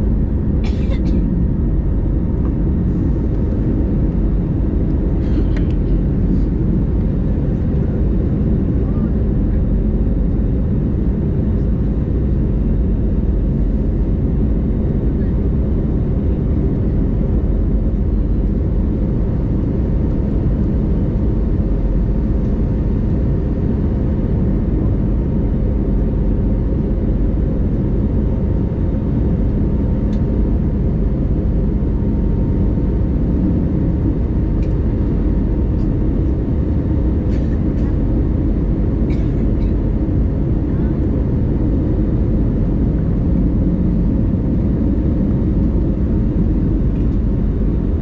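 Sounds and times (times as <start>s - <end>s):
aircraft cabin drone: 0.0s - 48.0s.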